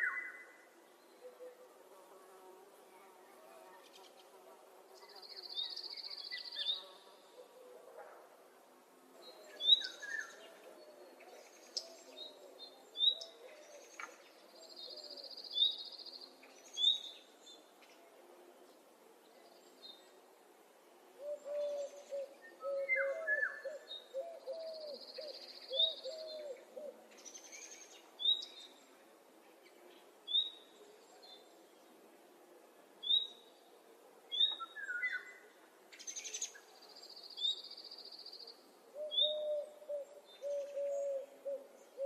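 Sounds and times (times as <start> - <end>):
low wavering bird calls: 38.9 - 42.0.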